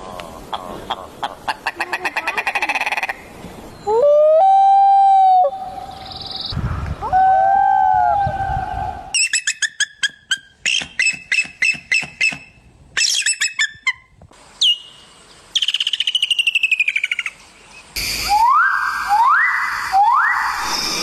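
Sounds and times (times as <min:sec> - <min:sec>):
birds chirping and whistling: 0:05.9 - 0:06.6, 0:09.1 - 0:14.0, 0:14.6 - 0:21.0.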